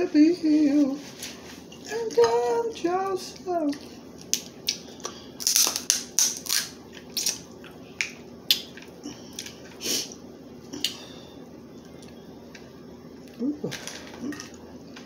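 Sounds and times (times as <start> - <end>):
crab shells cracking: 5.4 - 9.6.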